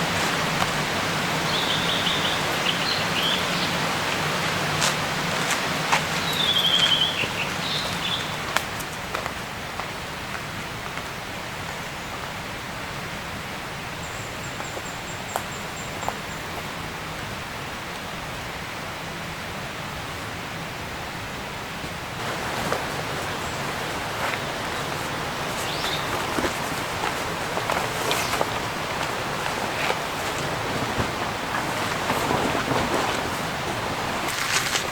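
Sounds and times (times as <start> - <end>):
forest ambience hiss: 0.0 - 34.9
rustling with crisp clicks: 22.2 - 34.9.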